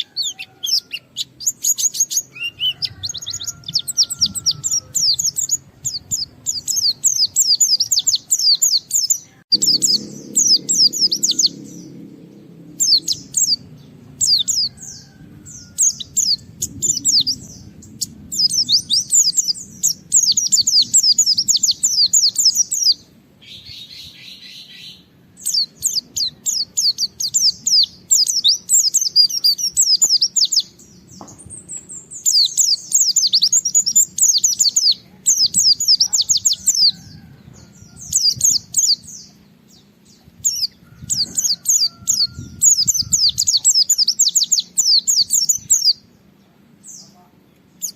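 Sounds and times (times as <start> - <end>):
bird twittering: 0.0 - 12.1, 12.8 - 30.8, 31.6 - 39.4.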